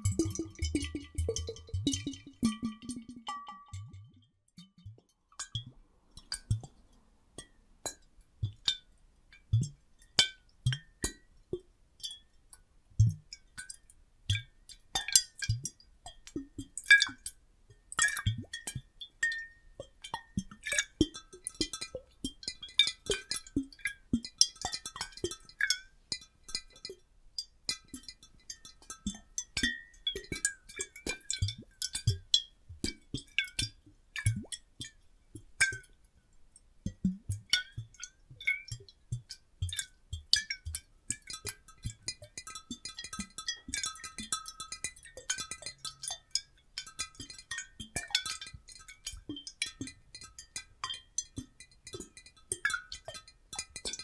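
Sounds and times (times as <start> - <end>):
water sloshing and plopping: 0.0 - 4.1.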